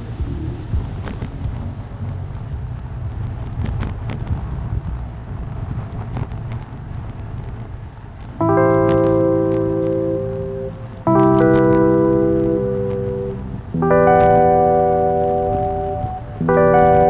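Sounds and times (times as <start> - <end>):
faint clicks: 6.0 - 17.0
electric piano chord: 8.4 - 17.0.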